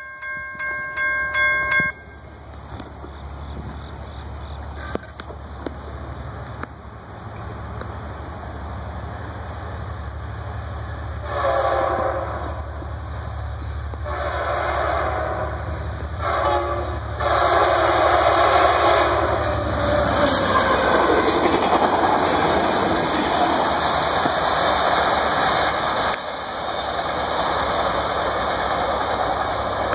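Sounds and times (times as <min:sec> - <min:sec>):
train cars rumbling on rails: 0:00.0 - 0:29.9
locomotive horn blasts: 0:11.2 - 0:12.7, 0:13.9 - 0:20.8.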